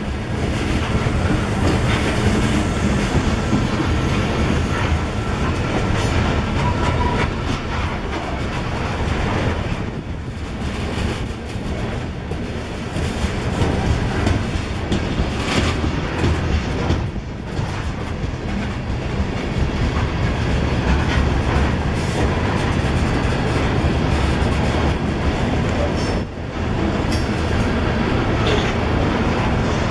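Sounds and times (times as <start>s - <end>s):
train rumbling past: 0.0s - 29.9s.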